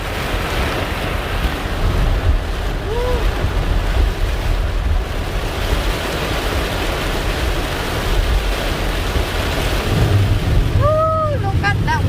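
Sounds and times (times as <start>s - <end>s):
heavy rain hitting a car: 0.0s - 12.0s
low rumble of car on wet road: 6.4s - 12.0s.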